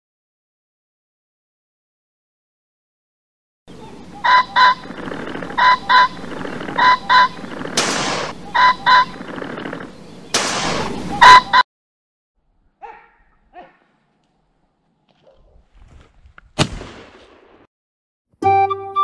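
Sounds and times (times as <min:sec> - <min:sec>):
two-note bird calls: 0:03.8 - 0:04.9, 0:05.5 - 0:07.5, 0:08.4 - 0:09.2, 0:10.8 - 0:11.6.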